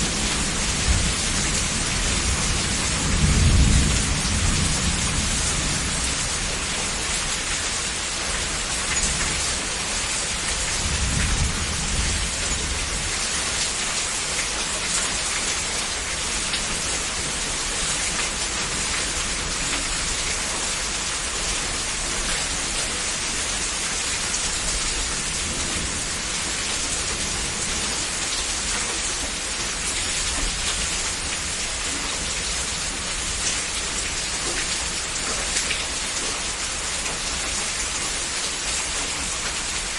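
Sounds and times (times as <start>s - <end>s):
low rumble of thunder: 0.0s - 7.7s, 10.6s - 13.9s
heavy rainfall: 0.0s - 39.9s.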